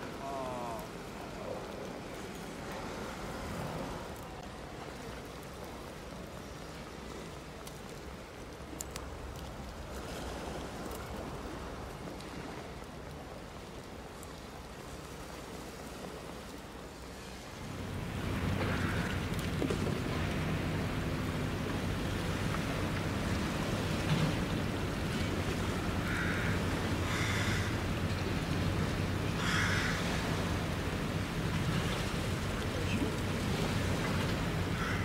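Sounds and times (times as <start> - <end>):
steady rain: 0.0 - 35.0
faint clicks: 6.6 - 10.0.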